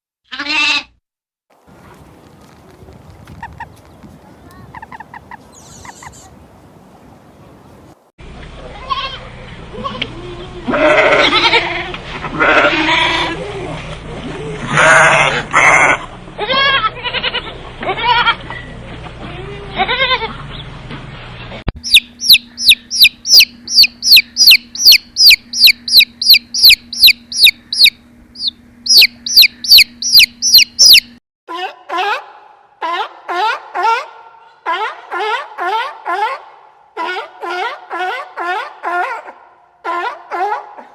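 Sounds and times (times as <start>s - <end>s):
goat bleating: 0.3s - 1.0s, 8.7s - 13.5s, 14.7s - 18.5s, 19.2s - 20.4s
chick peeping: 3.2s - 6.3s, 21.8s - 31.2s.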